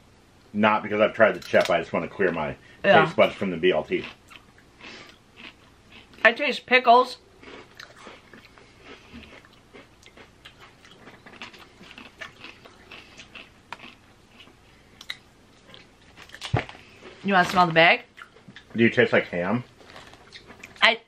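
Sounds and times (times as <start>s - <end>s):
person chewing potato chips: 3.2s - 6.3s, 7.3s - 17.2s, 18.1s - 18.8s, 19.8s - 20.8s.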